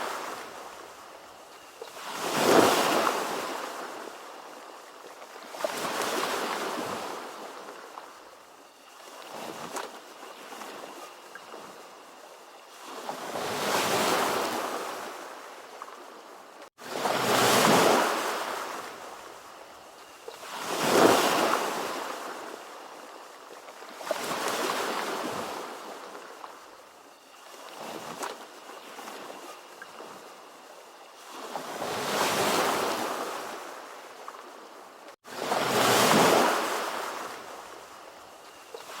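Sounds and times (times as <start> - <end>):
ocean waves breaking: 35.3 - 37.8.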